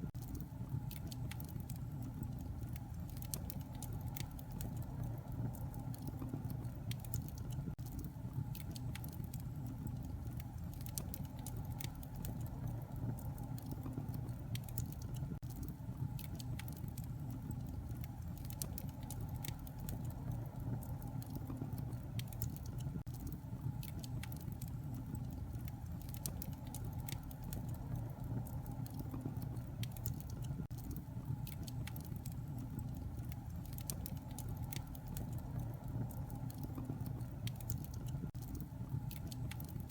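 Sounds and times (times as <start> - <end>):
campfire crackling: 0.0 - 39.9
fire popping and snapping: 0.0 - 39.9.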